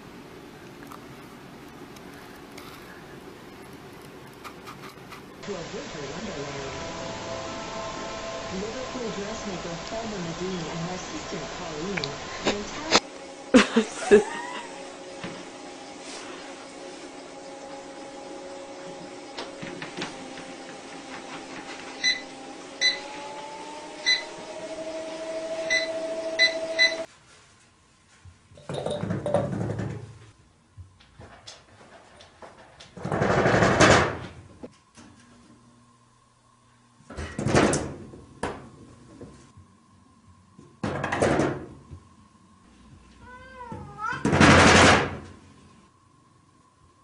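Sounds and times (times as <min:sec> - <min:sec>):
machine hum rising in pitch: 0:05.4 - 0:27.1
short electronic beeps: 0:25.7 - 0:27.1
cat meowing: 0:43.2 - 0:44.3.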